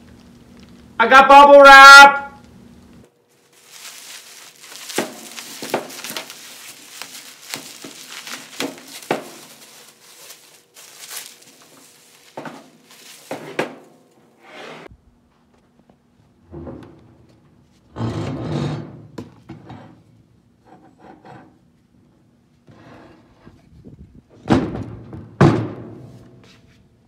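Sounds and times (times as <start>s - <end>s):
bubble wrap crinkling: 3.3s - 13.5s
bubble wrap cracking: 3.4s - 13.4s.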